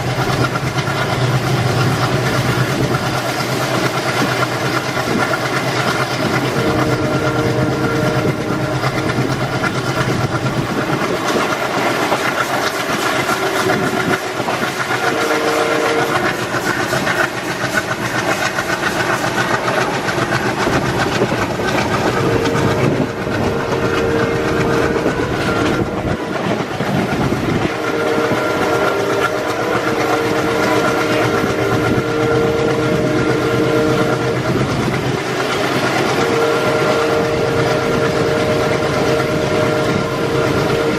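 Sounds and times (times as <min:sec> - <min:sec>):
train wheels clattering over rail joints: 0:00.0 - 0:40.9
train horn blasts: 0:06.0 - 0:26.5, 0:27.5 - 0:40.9.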